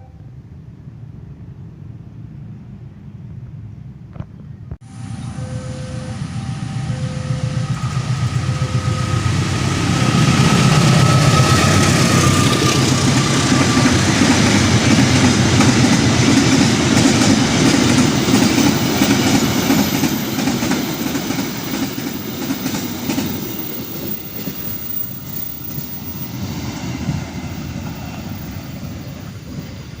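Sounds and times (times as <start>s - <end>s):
thin high tone: 4.9s - 14.0s
train wheels clattering: 7.6s - 26.1s.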